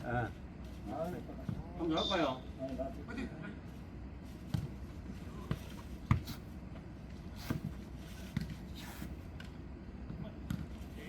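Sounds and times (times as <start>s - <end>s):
ball kicked and bouncing: 4.4s - 4.8s, 5.4s - 6.9s, 7.5s - 8.6s, 9.4s - 10.8s.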